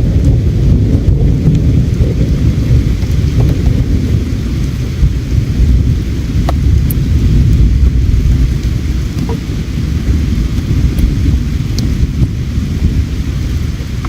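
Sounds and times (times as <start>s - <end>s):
campfire crackling pops: 2.8s - 4.2s, 5.7s - 9.5s, 10.4s - 12.4s
river water flowing: 6.0s - 12.0s.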